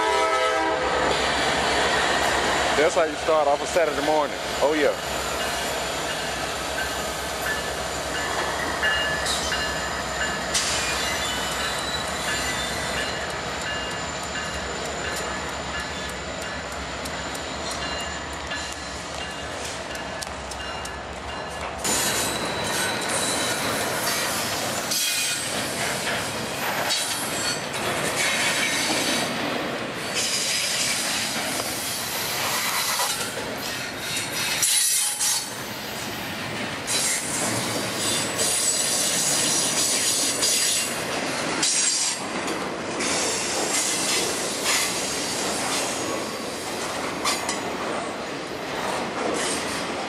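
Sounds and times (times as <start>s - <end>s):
freight train wheels on rails: 0.0s - 50.0s
wheel squeal: 10.5s - 13.2s.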